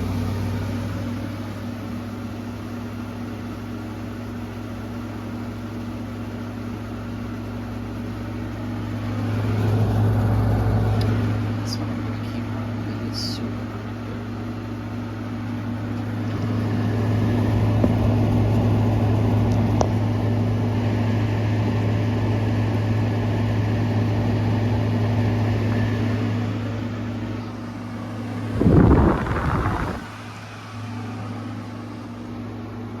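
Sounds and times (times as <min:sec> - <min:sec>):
air conditioner humming: 0:00.0 - 0:33.0
air conditioner rattling shudder: 0:23.9 - 0:33.0.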